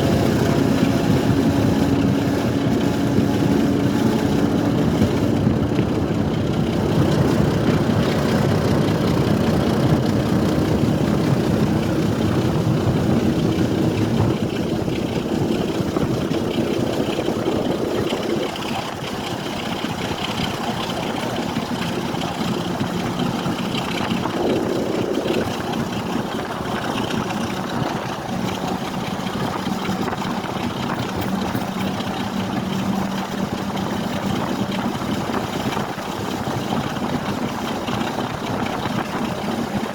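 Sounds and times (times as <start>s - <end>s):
train engine drone: 0.0s - 39.9s.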